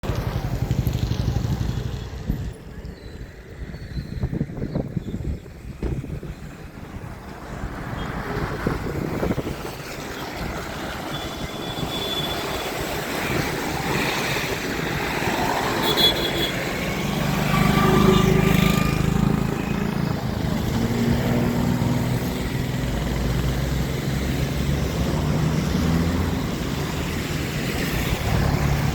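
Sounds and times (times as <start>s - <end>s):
rushing background noise: 0.0s - 28.9s
vehicle engine humming: 5.8s - 28.9s.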